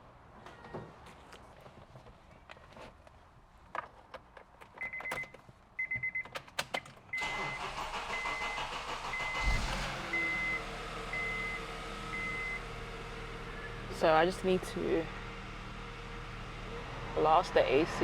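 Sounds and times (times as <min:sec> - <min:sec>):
dashboard beeps: 0:04.8 - 0:06.3, 0:10.2 - 0:10.6, 0:11.2 - 0:11.6, 0:12.2 - 0:12.6
car engine cranking and running: 0:07.2 - 0:18.0.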